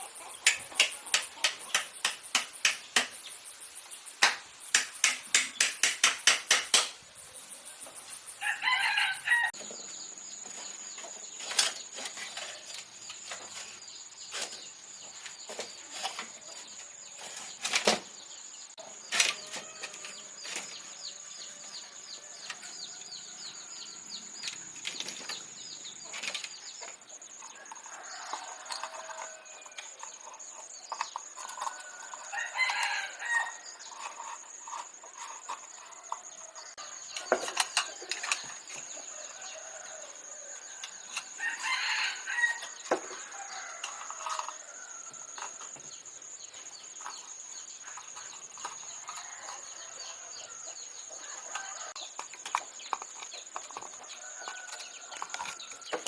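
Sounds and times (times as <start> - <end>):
chickens clucking: 0.0 - 3.6
rooster crowing: 8.4 - 9.6, 27.6 - 29.9, 31.6 - 33.6, 39.1 - 45.6.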